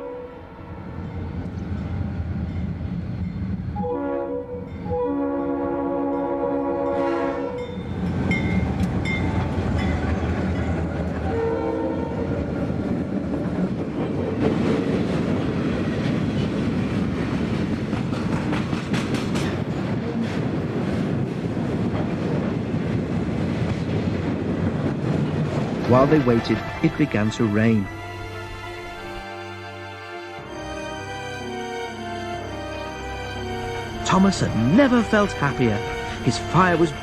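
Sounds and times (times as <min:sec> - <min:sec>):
train horn: 0:00.0 - 0:01.2, 0:03.8 - 0:08.0, 0:11.2 - 0:12.6, 0:25.8 - 0:37.0
train rumbling past: 0:00.0 - 0:37.0.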